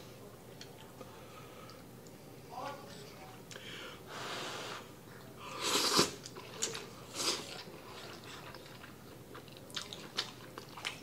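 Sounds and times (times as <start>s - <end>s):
person slurping noodles: 5.5s - 6.2s
wet chewing: 5.8s - 11.0s.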